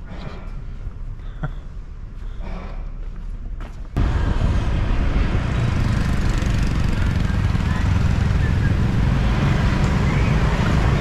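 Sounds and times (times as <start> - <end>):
motorbike engine: 4.0 - 11.0.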